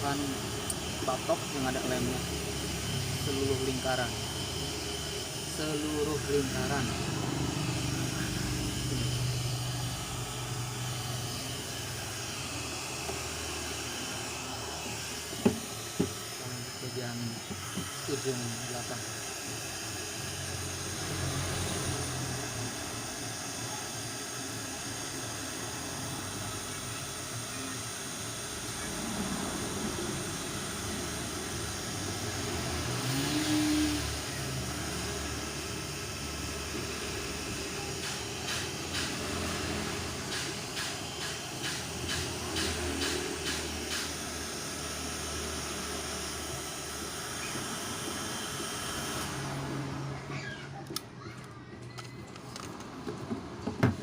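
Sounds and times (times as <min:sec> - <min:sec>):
hair dryer blowing: 0:00.0 - 0:51.1.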